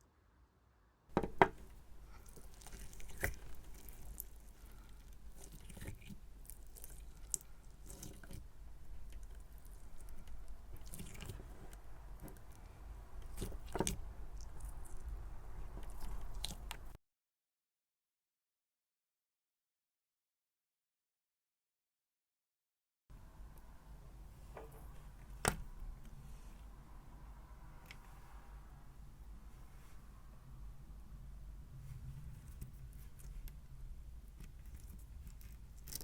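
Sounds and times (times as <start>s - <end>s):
hands squishing slime: 1.4s - 16.9s.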